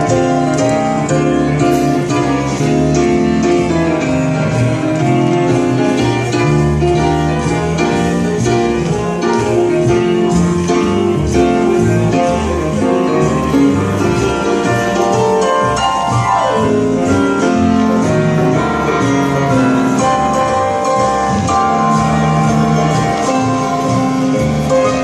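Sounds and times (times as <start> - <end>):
music through horn loudspeakers: 0.0 - 25.0.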